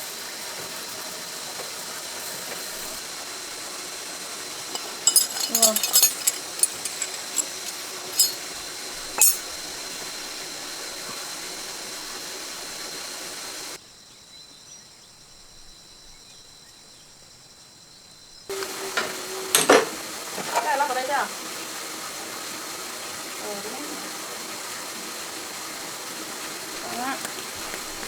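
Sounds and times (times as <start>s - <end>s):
steady hiss: 18.5s - 28.0s.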